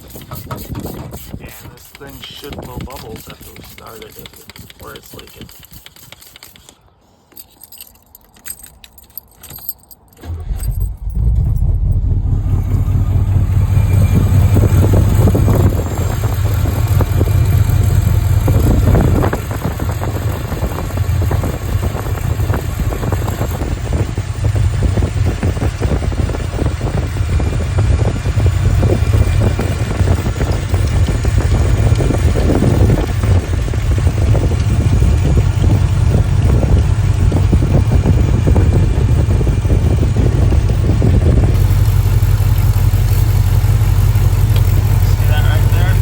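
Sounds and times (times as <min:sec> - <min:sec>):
light clicks and rattles: 0:00.1 - 0:11.7
car engine starting and running: 0:01.7 - 0:05.6, 0:08.2 - 0:46.0.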